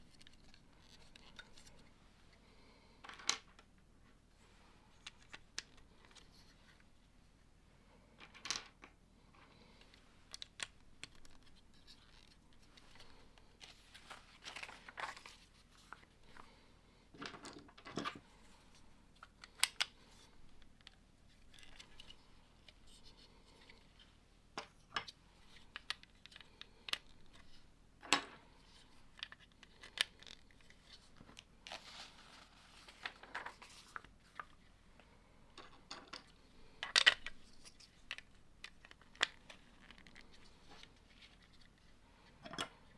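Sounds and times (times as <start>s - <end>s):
loose plastic parts rustling: 8.2s - 34.8s.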